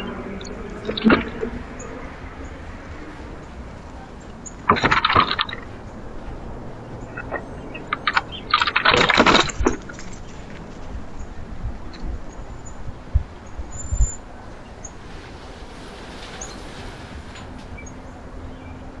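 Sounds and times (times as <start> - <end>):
bird wing flaps and rustling: 9.0 - 19.0
faint high bird chirp: 12.0 - 18.8.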